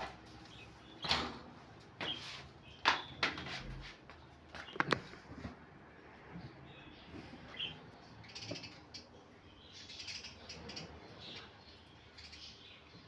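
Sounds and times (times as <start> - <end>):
budgerigars chirping: 6.7 - 13.0.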